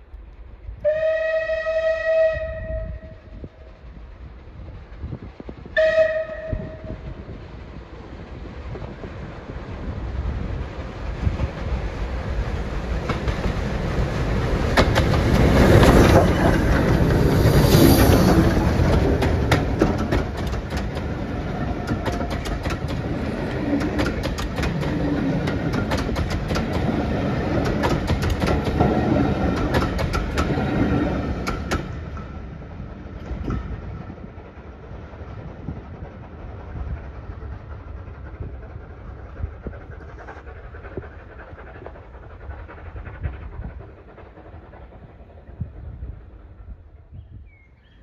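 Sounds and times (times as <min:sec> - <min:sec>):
steam train passing: 0:00.0 - 0:48.0
wheels clicking over rail joints: 0:11.0 - 0:39.1.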